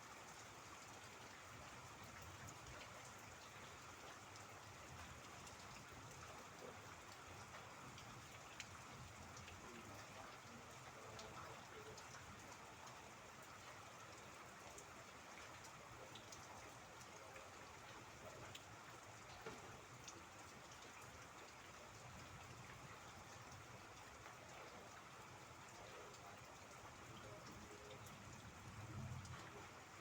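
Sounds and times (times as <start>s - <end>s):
faint steady rain: 0.0s - 30.0s
raindrops ticking: 2.1s - 30.0s.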